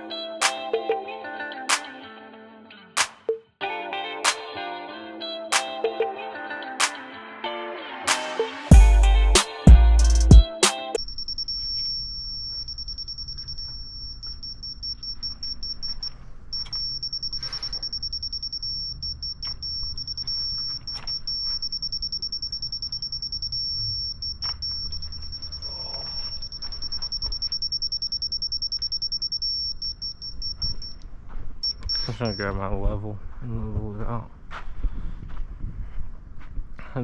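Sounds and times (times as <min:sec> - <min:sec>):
high-pitched insect trill: 0:16.6 - 0:31.0.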